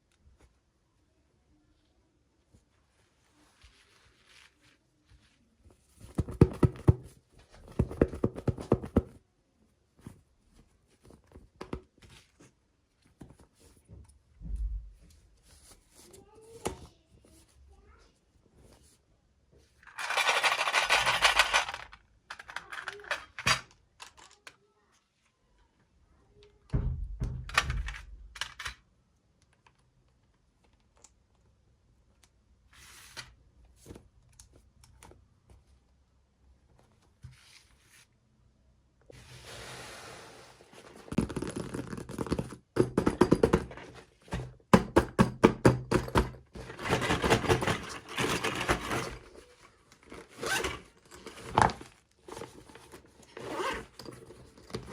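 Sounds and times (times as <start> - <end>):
toy packaging rustling: 19.8 - 24.6, 46.6 - 54.9
plastic toy pieces clicking: 19.9 - 24.6.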